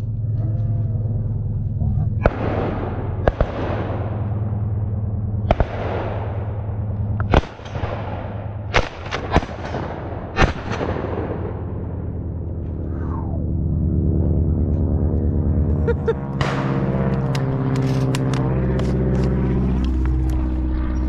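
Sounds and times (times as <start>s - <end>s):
low hum: 0.0s - 21.0s
shotguns firing: 2.2s - 4.4s, 5.5s - 11.6s.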